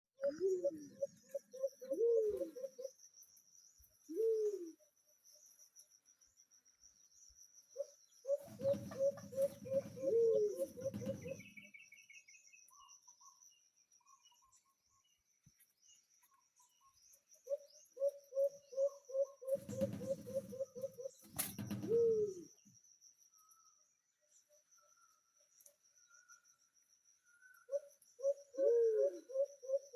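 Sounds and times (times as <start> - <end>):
bird calling: 0.2 - 3.0, 4.1 - 4.8, 7.8 - 11.8.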